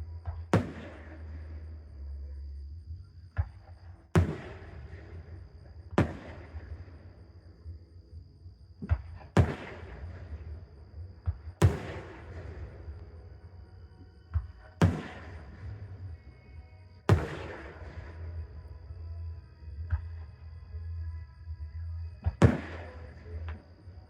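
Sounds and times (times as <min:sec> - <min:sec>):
fireworks bursting with booms: 0:00.3 - 0:01.8, 0:04.2 - 0:07.4, 0:08.8 - 0:13.3, 0:14.4 - 0:16.2, 0:17.1 - 0:18.4, 0:22.2 - 0:23.6.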